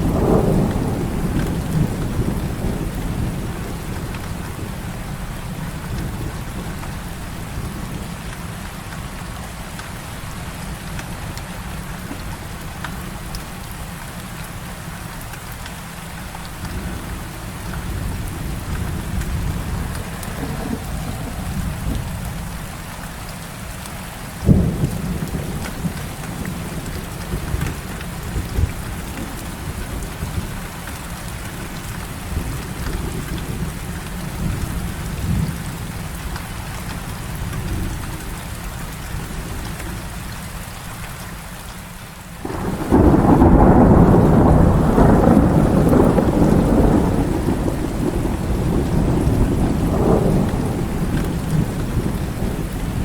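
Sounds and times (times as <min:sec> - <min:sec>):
sharp thunderclap: 0:00.0 - 0:04.4, 0:17.8 - 0:22.7, 0:42.4 - 0:53.0
rolling thunder: 0:00.0 - 0:08.1, 0:16.5 - 0:23.0, 0:24.4 - 0:30.7, 0:42.4 - 0:53.0
heavy rain: 0:00.0 - 0:53.0.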